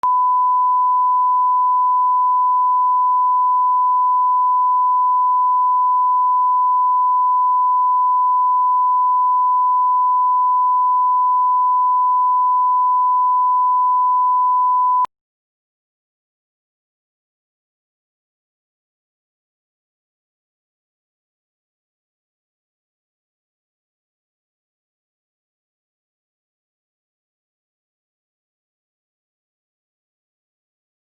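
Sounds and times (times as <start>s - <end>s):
sine test tone: 0.0s - 15.1s.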